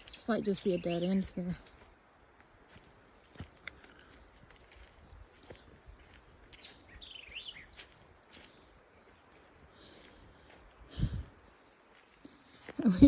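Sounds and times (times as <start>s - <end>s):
birds chirping: 0.0s - 1.6s, 6.6s - 8.0s
crickets chorus: 0.0s - 13.0s.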